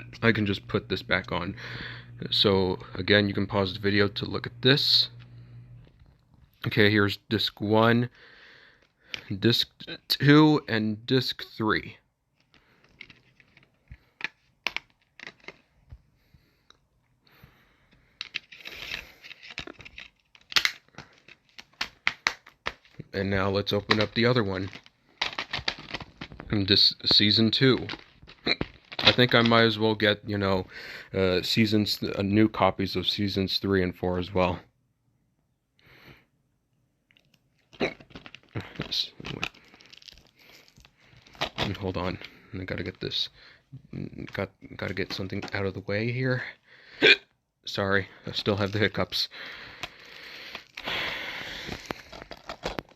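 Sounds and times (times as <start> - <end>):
plastic cases clicking: 12.4 - 15.6, 18.2 - 23.0, 23.7 - 26.6, 27.8 - 29.6, 37.9 - 42.2, 49.7 - 52.9
plastic wrap crackling: 18.3 - 29.6, 37.2 - 43.3, 48.3 - 52.9.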